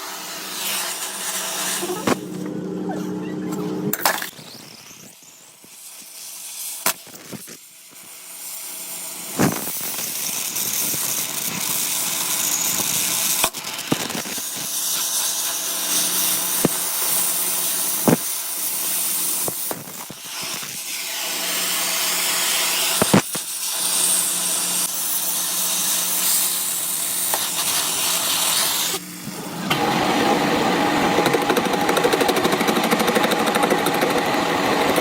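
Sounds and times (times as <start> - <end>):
hissing scraping cut into steel: 0.1 - 2.4, 13.9 - 32.3
lathe motor hum: 29.1 - 35.0.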